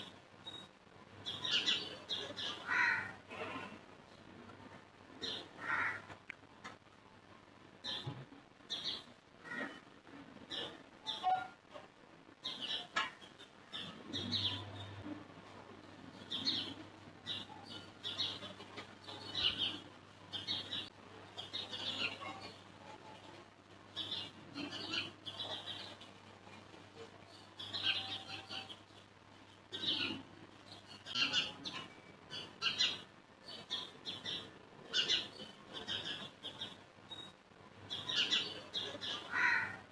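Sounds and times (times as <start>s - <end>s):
birds chirping: 12.4s - 15.1s, 16.0s - 22.6s, 23.9s - 39.8s.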